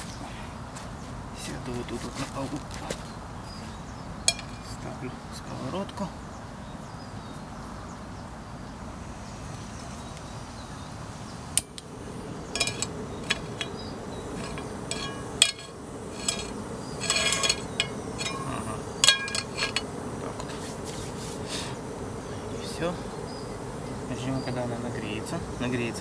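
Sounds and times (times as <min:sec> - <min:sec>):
frying pan knocking on gas burner: 0:04.3 - 0:04.6, 0:12.5 - 0:19.9
metal clinks: 0:04.3 - 0:04.7, 0:12.4 - 0:20.0.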